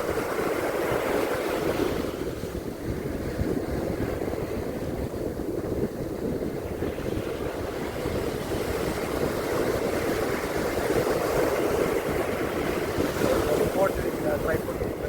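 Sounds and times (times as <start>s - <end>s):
ocean surf on beach: 0.0s - 15.0s
wind buffeting microphone: 0.0s - 15.0s.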